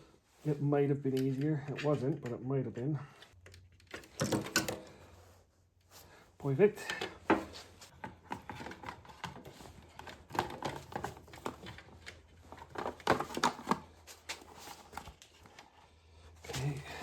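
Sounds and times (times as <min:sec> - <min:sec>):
mechanism parts clicking and rattling: 0:03.4 - 0:04.9.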